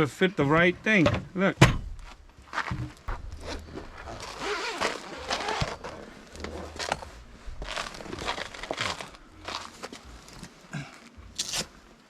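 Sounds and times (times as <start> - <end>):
tent fabric rustling: 2.0 - 12.0.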